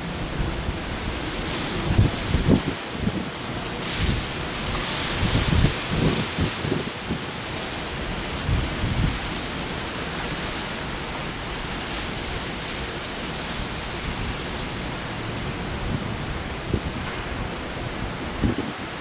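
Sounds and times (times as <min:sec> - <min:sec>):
heavy rain: 0:00.0 - 0:19.0
wind buffeting microphone: 0:00.0 - 0:19.0.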